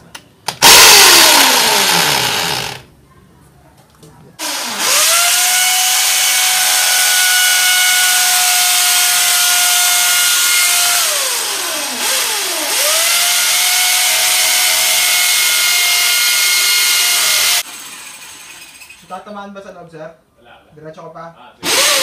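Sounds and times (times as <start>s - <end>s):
power drill boring through wall: 0.5s - 2.9s, 4.4s - 19.0s, 21.6s - 22.0s.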